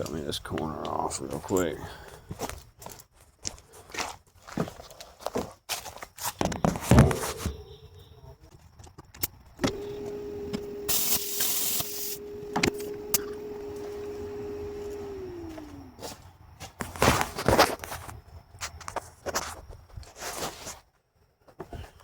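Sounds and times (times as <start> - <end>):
power tool cutting sheet metal: 9.6 - 16.0.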